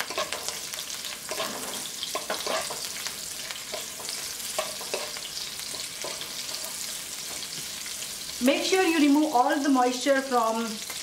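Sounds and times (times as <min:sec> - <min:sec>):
wooden spatula scraping a pan: 0:00.0 - 0:07.8
leaves sizzling in hot oil: 0:00.0 - 0:11.0.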